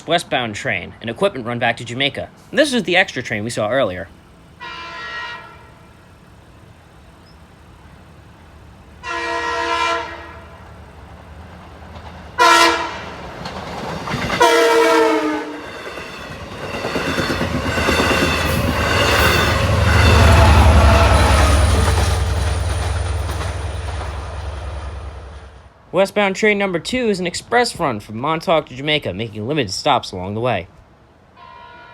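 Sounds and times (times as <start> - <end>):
train rumble and wheel clatter: 0.0 - 25.8
train horn blasts: 4.6 - 6.2, 9.0 - 10.7, 12.4 - 13.2, 14.4 - 15.7, 19.0 - 21.8, 31.3 - 31.9.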